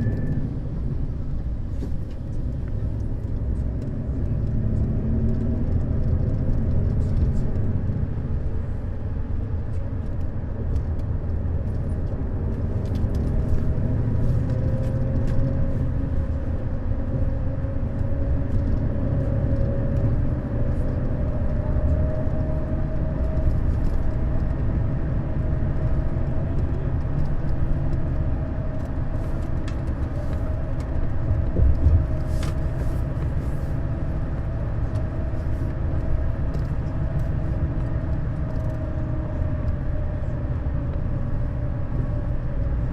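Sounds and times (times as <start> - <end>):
faint whine: 0.0 - 1.2
coach engine and road rumble: 0.0 - 42.9.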